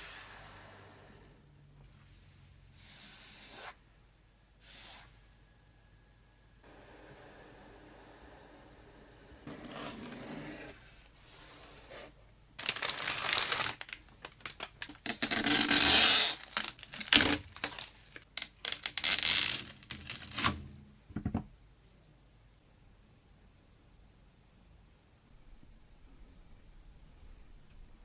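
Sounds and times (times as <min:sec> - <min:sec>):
packaging being torn and crinkled: 0:12.6 - 0:20.6.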